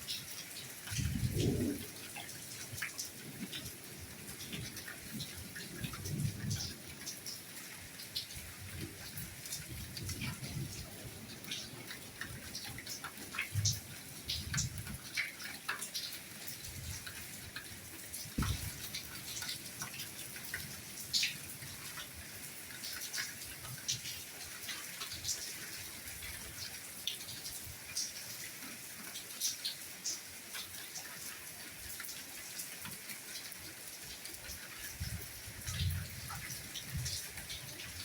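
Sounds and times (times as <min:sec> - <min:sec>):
rain hiss: 0:00.0 - 0:38.0
water drops ticking and dripping: 0:00.0 - 0:38.0
low thud: 0:18.4 - 0:18.8.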